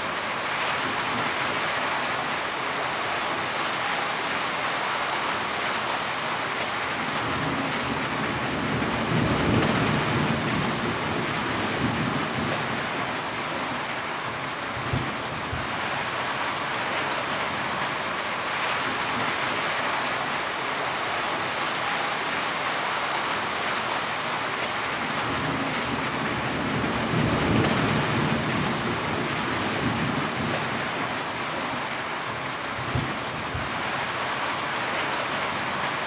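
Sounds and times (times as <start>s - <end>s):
heavy rain falling: 0.0s - 36.0s
low rumble of thunder: 7.2s - 13.3s, 25.2s - 31.2s, 32.8s - 33.8s.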